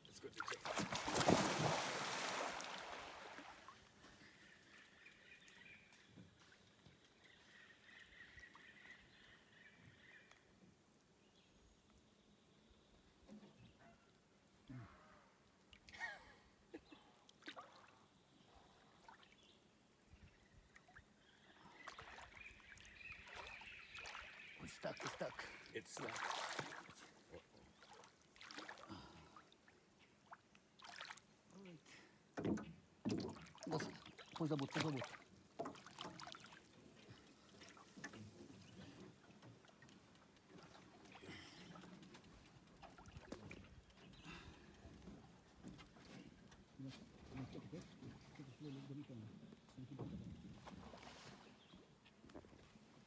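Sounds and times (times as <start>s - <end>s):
water splashing around boat: 0.3s - 4.1s, 21.9s - 29.2s, 32.4s - 48.6s.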